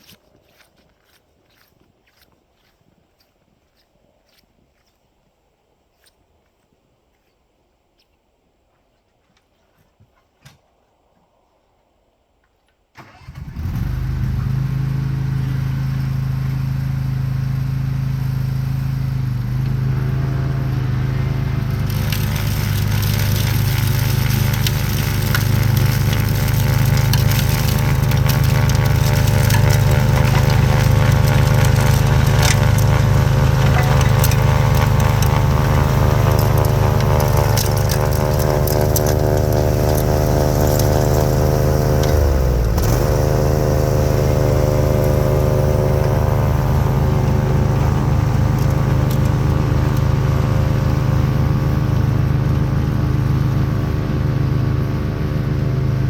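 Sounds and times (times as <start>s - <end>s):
lawn tractor engine running: 13.0s - 56.0s.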